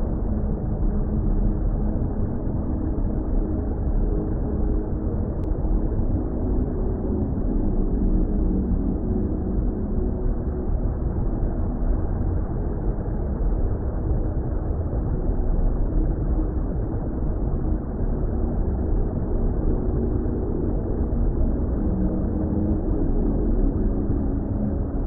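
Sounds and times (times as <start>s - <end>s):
deep underwater water rumble: 0.0s - 25.0s
faint sustained drone tones: 0.0s - 25.0s.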